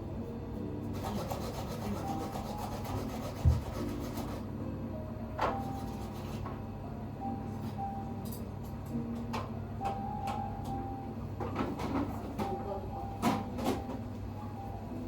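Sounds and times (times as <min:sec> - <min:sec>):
rapid scraping strokes: 0:01.0 - 0:04.4.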